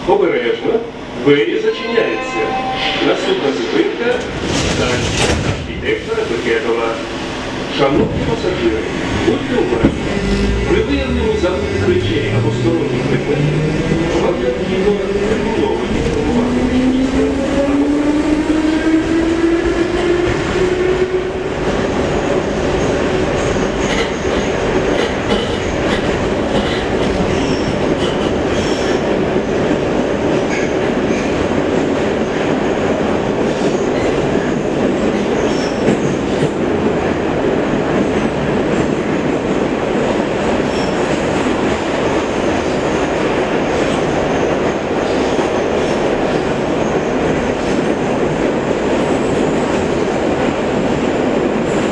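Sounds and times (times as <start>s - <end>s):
wheels rumbling on rails: 4.1s - 51.9s
train motor whine: 9.2s - 14.5s.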